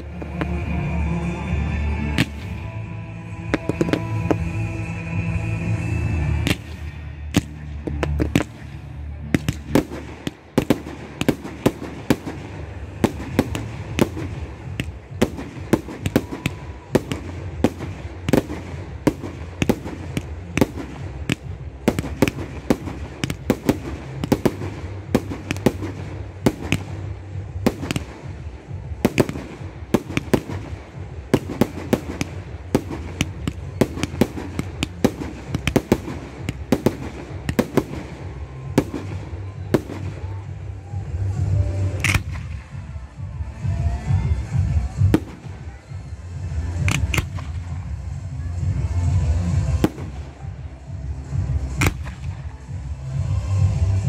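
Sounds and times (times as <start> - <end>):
firework bangs: 2.0 - 2.7, 3.5 - 4.6, 6.3 - 42.8, 51.2 - 52.6.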